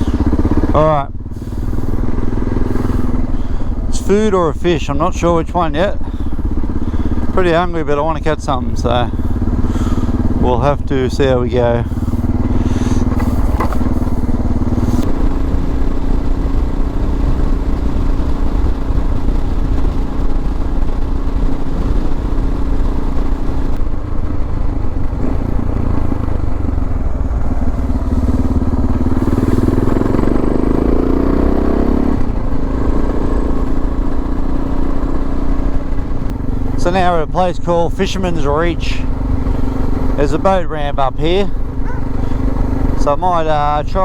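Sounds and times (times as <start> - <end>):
motorcycle engine cruising: 0.0 - 44.0
riding noise: 0.0 - 44.0.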